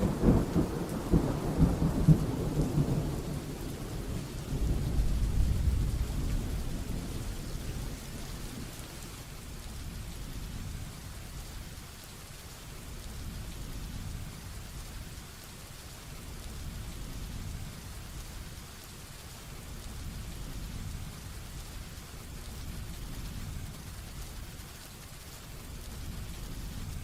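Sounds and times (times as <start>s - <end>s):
thunder rumbling: 0.0s - 9.1s
heavy rain falling: 0.0s - 27.0s.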